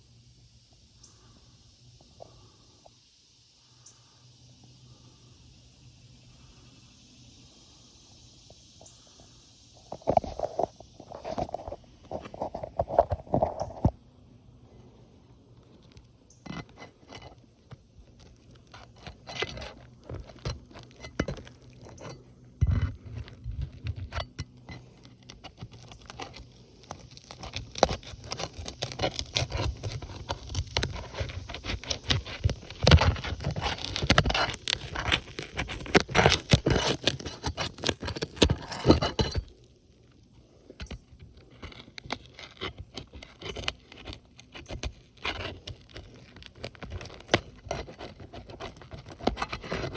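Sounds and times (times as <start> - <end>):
shingles scraping and tearing: 15.7 - 49.9.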